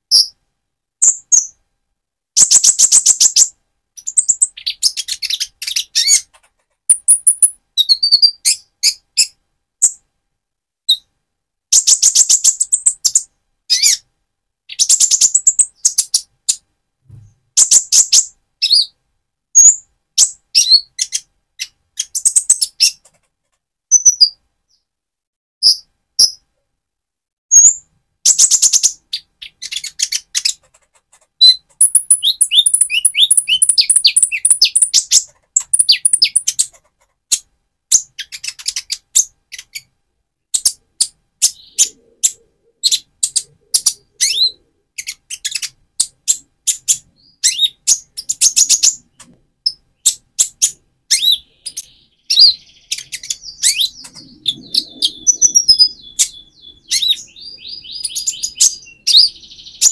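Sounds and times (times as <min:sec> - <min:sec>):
sunbird singing high chirps and trills: 0:06.9 - 0:09.4, 0:31.4 - 0:36.6, 0:40.6 - 0:49.0, 0:49.6 - 0:59.9.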